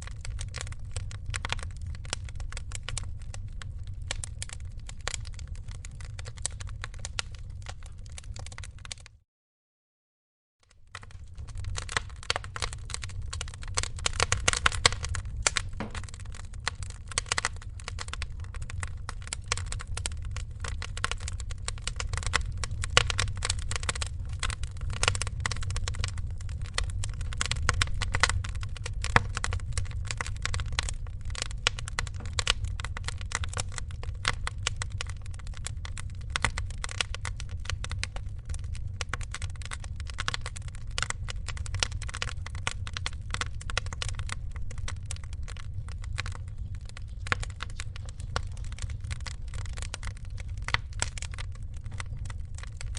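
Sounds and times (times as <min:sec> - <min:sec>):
fire pops and snaps: 0:00.0 - 0:09.2, 0:10.7 - 0:52.9
wood fire crackling: 0:00.0 - 0:09.2, 0:10.7 - 0:52.9
low rumble: 0:11.0 - 0:36.5.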